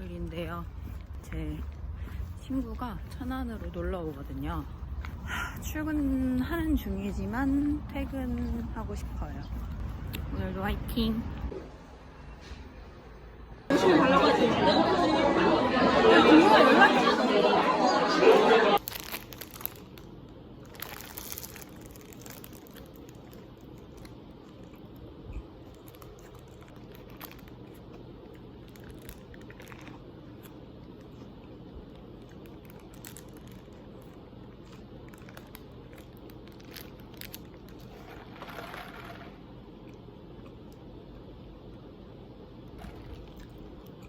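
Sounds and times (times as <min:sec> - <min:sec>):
food crunching and crinkling: 0:00.0 - 0:10.4, 0:18.8 - 0:41.9, 0:42.6 - 0:44.0
low hum: 0:00.0 - 0:18.8.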